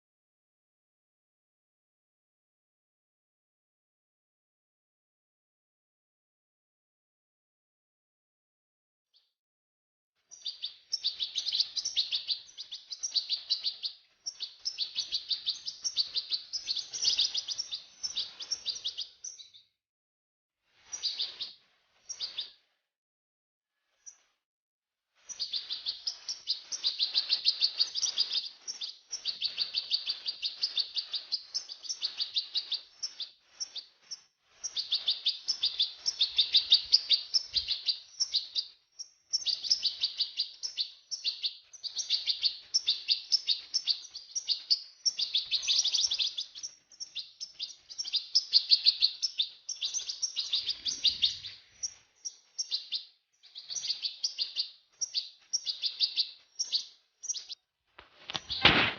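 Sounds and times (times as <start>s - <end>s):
finch twittering song: 10.3s - 19.8s, 20.8s - 22.6s, 25.2s - 57.6s.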